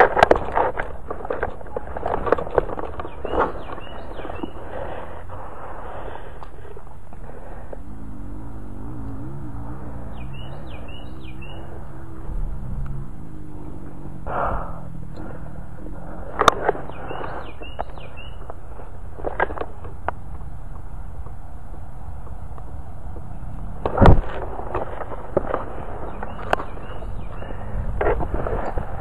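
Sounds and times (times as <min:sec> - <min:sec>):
brush rustling: 0:00.0 - 0:07.8, 0:09.8 - 0:21.3
bird chirping: 0:01.2 - 0:05.4, 0:06.5 - 0:23.9, 0:25.4 - 0:28.8.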